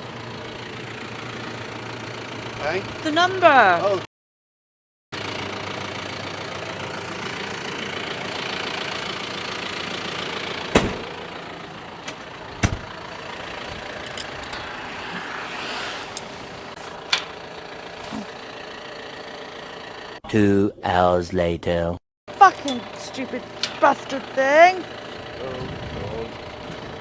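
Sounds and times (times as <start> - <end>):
vehicle engine idling: 0.0 - 4.0, 5.2 - 20.2, 22.3 - 27.0.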